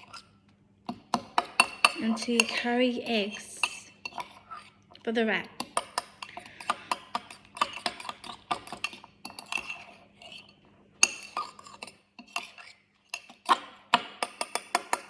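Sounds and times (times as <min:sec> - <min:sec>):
fork clinking against a bowl: 0:00.9 - 0:02.7, 0:03.6 - 0:04.7, 0:05.6 - 0:15.0.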